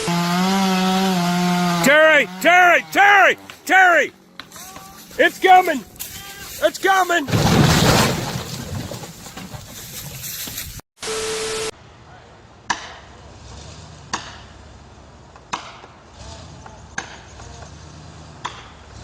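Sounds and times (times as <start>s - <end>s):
tree falling and crashing: 4.6s - 10.8s
short steady beep: 11.0s - 11.7s.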